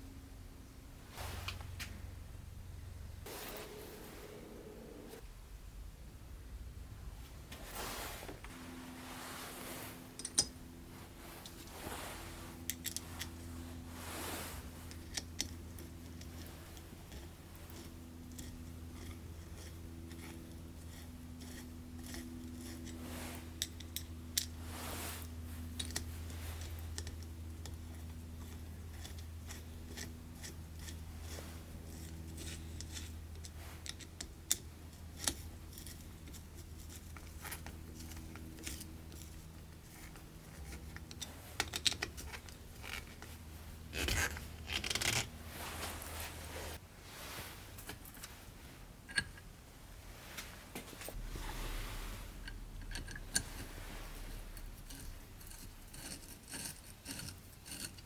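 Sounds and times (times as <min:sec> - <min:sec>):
low hum: 0:00.0 - 0:28.9, 0:50.0 - 0:57.6
small clicks and scrapes: 0:11.2 - 0:46.8, 0:50.2 - 0:58.0.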